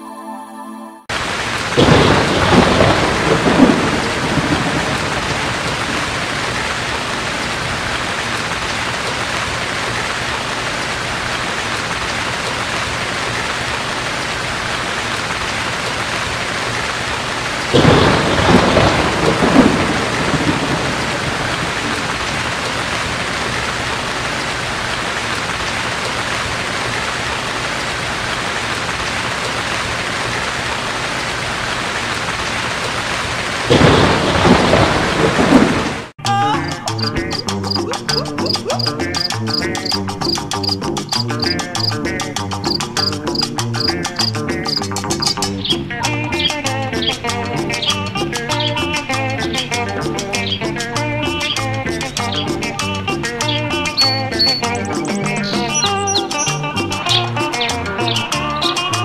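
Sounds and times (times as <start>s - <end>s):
thunder rumbling: 1.1s - 36.2s
heavy rain: 1.1s - 59.0s.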